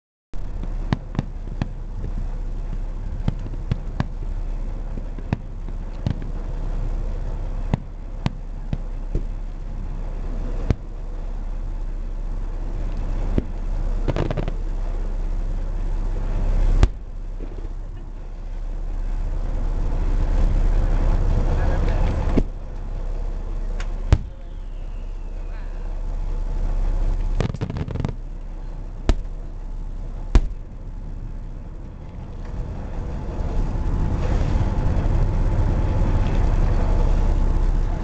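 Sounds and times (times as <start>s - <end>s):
steady low rumble: 0.3s - 38.0s.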